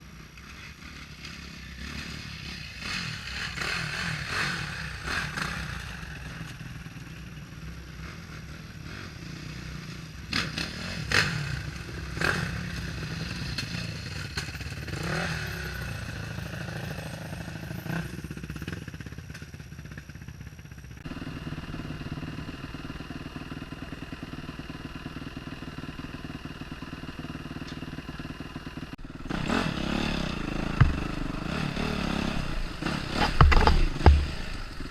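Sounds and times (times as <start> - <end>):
dirt bike engine revving: 0.4 - 18.8, 21.0 - 34.9
sharp clattering knocks: 30.5 - 34.9.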